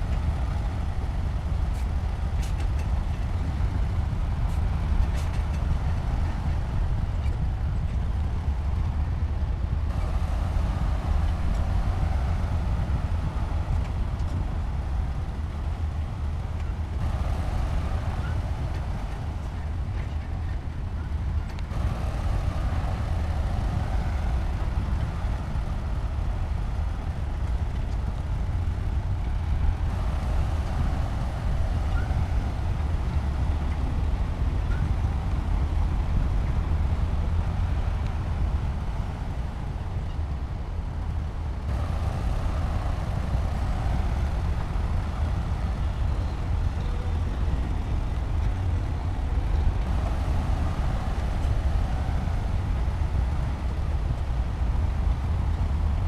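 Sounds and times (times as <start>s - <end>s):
bulldozer diesel engine rumbling: 0.0s - 56.0s.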